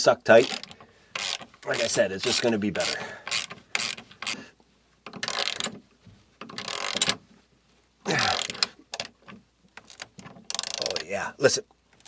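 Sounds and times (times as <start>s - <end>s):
timber creaking: 0.3s - 5.8s, 6.4s - 7.2s, 8.1s - 11.2s
ratchet wrench clicking: 0.4s - 4.4s, 5.1s - 5.7s, 6.4s - 7.2s, 9.9s - 11.0s.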